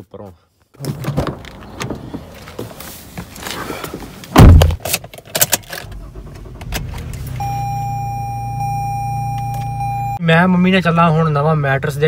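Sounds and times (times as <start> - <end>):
car engine starting and idling: 5.2 - 10.2
steady high tone: 7.4 - 10.2.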